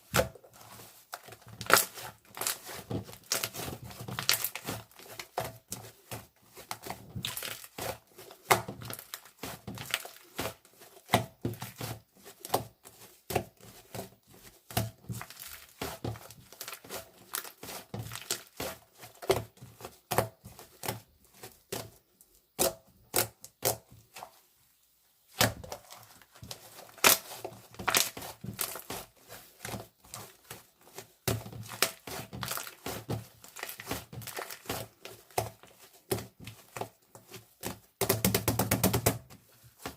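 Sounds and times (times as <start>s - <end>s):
crinkly material crumpled and torn: 0.4s - 13.0s, 13.6s - 19.8s, 25.6s - 37.7s.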